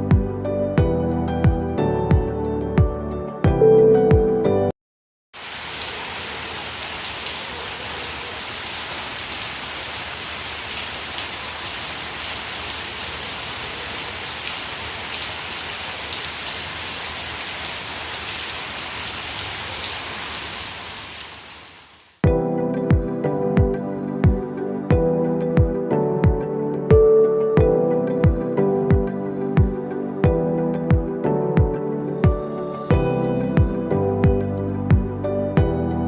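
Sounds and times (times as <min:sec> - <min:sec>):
steady rain falling: 0:05.4 - 0:22.2.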